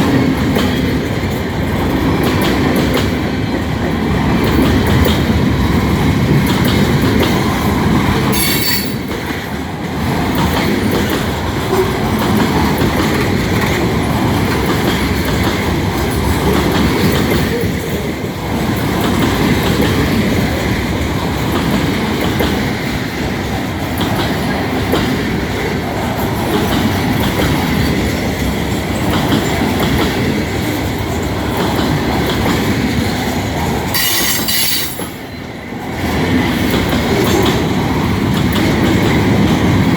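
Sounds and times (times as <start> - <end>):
train wheels rolling on rails: 0.0 - 39.9
high brake squeals: 34.0 - 35.1.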